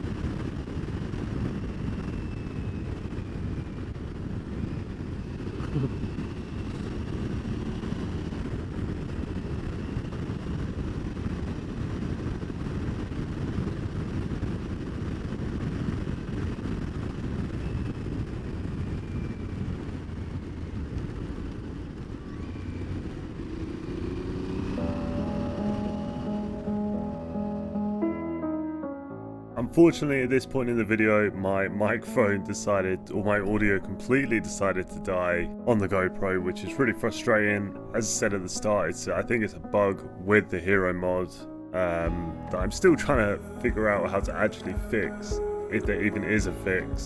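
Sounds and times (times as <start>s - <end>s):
wind rumble on microphone: 0.0s - 28.0s
motorcycle engine running: 22.3s - 27.7s.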